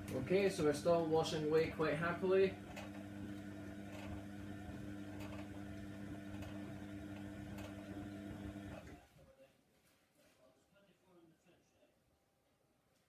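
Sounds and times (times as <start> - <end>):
washing machine drum turning: 0.0 - 0.6, 1.5 - 8.9.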